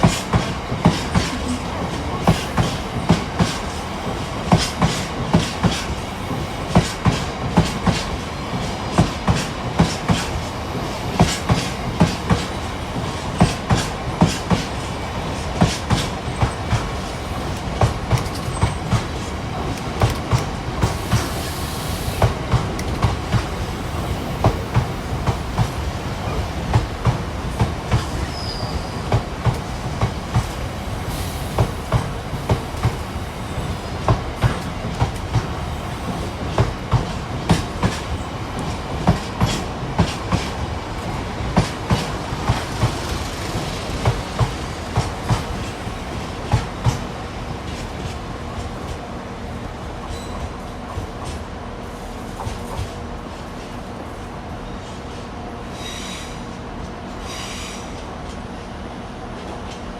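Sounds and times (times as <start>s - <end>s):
train wheels clattering over rail joints: 2.1s - 49.0s.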